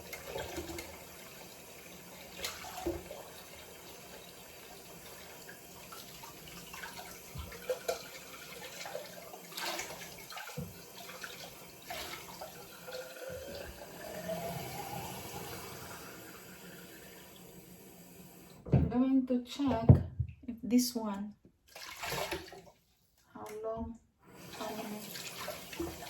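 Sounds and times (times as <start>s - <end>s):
tap water running into sink: 0.0s - 18.8s, 21.7s - 22.7s, 24.3s - 26.0s.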